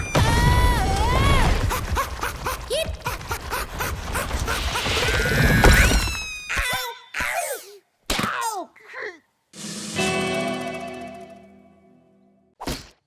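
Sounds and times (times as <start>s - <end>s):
squeaky cartoon character voices: 5.2s - 9.2s
cartoon hits and pops: 12.6s - 13.0s.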